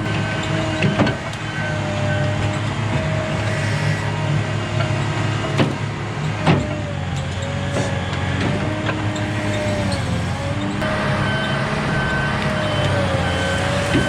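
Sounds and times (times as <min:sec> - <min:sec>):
heavy diesel machinery running: 0:00.0 - 0:14.0.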